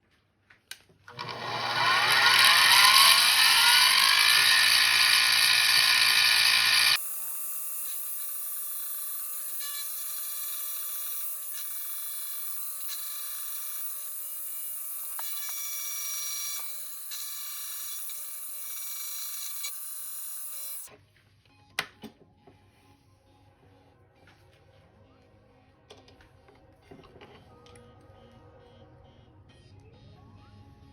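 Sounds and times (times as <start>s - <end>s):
milling machine motor whining: 1.1s - 20.9s
high-pitched machining sound: 1.2s - 20.9s.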